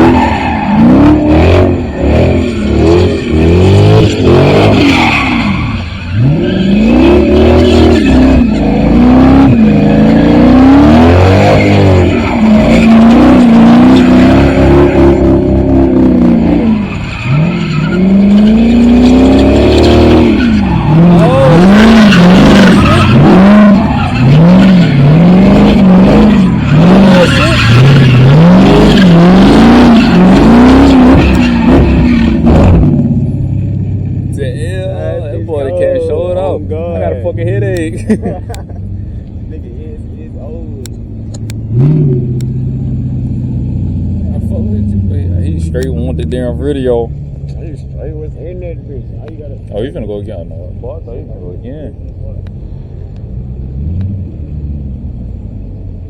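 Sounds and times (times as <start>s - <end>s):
tyres squealing on pavement: 0.0s - 32.7s
car engine revving: 0.0s - 56.0s.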